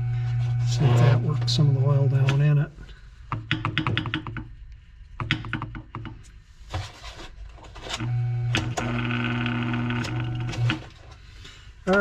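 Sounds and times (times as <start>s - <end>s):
fan motor humming: 0.0s - 2.7s, 7.8s - 12.0s.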